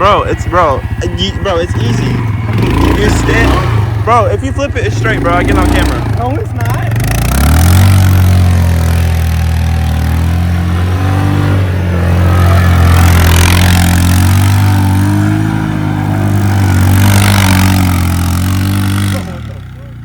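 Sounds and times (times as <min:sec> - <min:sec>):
small motorcycle engine running: 0:00.0 - 0:20.0.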